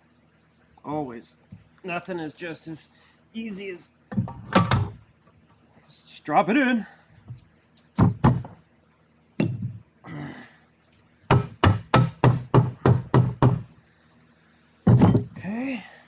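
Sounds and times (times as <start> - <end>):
hammer tapping metal part: 11.3 - 13.7.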